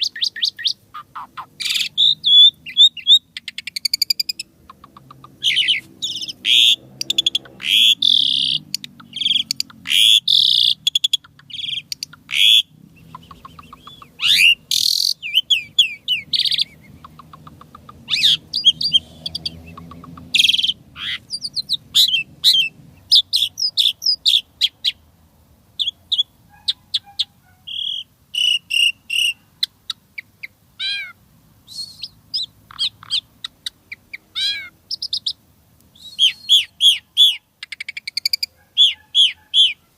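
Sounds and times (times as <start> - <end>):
starling singing: 0.0 - 25.0, 25.8 - 39.9.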